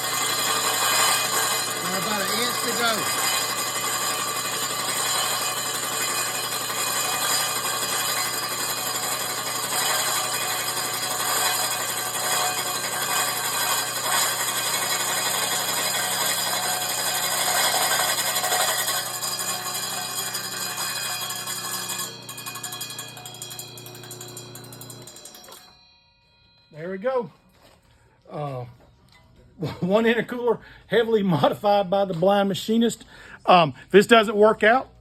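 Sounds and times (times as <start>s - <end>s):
machine humming: 0.0s - 25.8s
saw blade grinding through metal: 0.0s - 25.8s.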